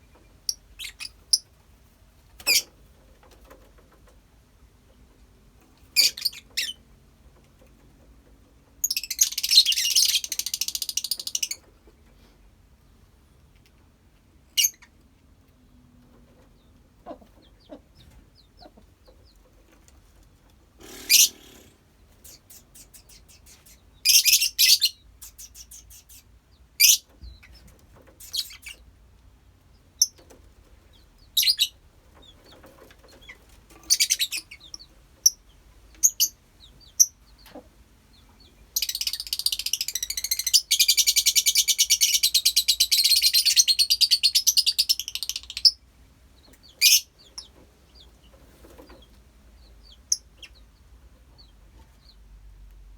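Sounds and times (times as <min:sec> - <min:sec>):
birds chirping and screeching: 0:20.8 - 0:22.9.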